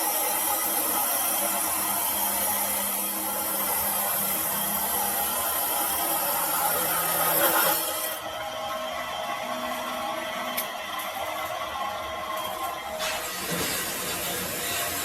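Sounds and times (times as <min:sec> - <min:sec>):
machine scraping cutting steel: 0:00.0 - 0:08.3, 0:12.4 - 0:15.0.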